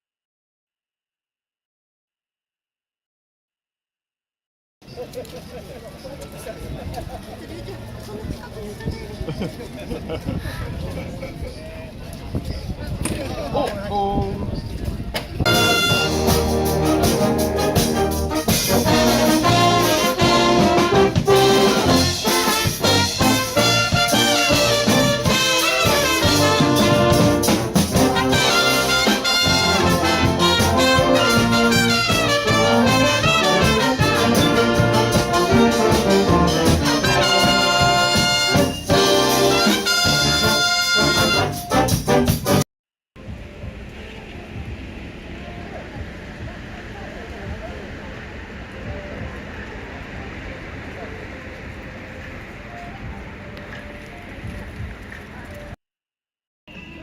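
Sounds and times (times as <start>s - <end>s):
brass instruments playing: 15.5s - 42.6s.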